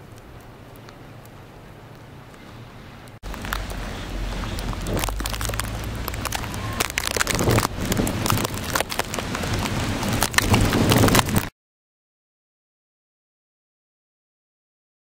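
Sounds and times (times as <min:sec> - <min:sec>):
steady low rumble: 0:00.0 - 0:11.4
dense crackling and clicking: 0:03.0 - 0:11.5.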